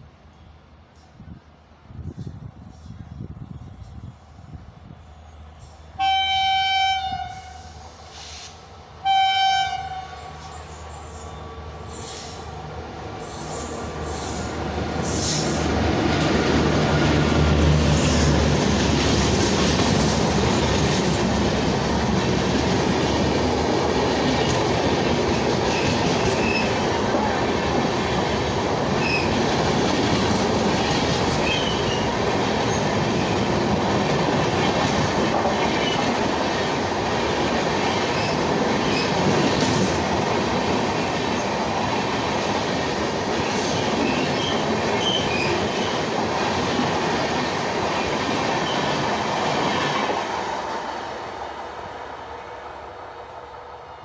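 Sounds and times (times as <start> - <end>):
train passing: 0.0 - 54.0
locomotive horn blasts: 6.0 - 7.7, 9.0 - 10.3
train wheel clatter: 17.6 - 50.4.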